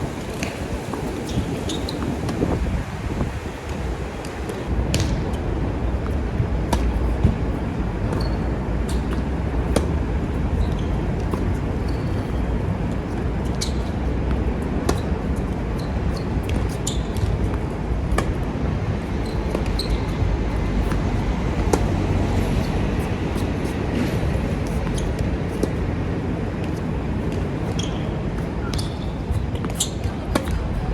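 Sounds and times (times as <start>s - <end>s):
wind rumbling on microphone: 0.0s - 30.9s
ball bouncing on court: 3.7s - 12.3s, 13.5s - 18.4s, 19.0s - 22.1s, 27.3s - 30.8s
tennis ball struck by rackets: 4.9s - 5.4s, 16.4s - 18.4s, 19.4s - 22.0s, 29.5s - 30.6s.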